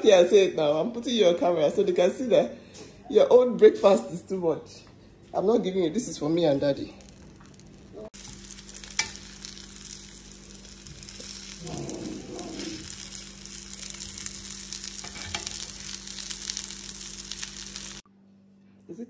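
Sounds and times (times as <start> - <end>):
plantains frying in oil: 6.1 - 18.0.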